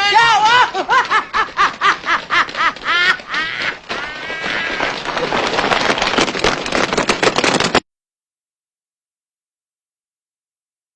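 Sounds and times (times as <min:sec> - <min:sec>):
dense crackling noise: 0:00.0 - 0:07.8
hearty laughter: 0:00.5 - 0:04.8.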